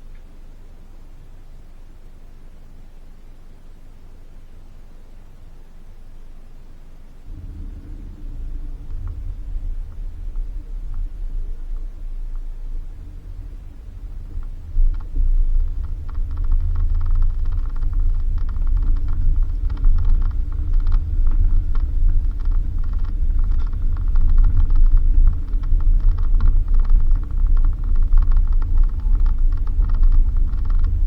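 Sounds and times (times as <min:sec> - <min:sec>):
car engine rumble from inside: 0:07.0 - 0:31.0
body and suspension rattling: 0:07.3 - 0:31.0.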